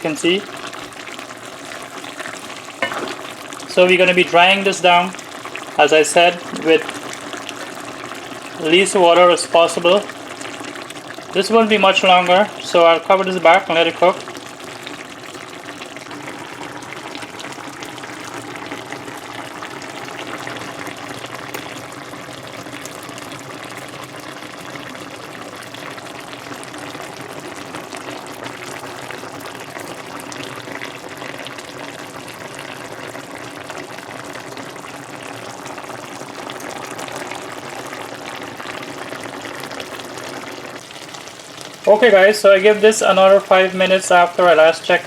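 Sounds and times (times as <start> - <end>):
curry bubbling in a pot: 0.0 - 45.0.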